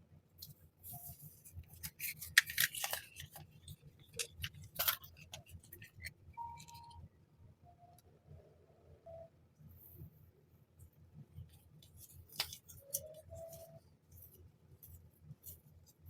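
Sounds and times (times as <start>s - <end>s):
packaging crinkling: 0.9s - 6.7s.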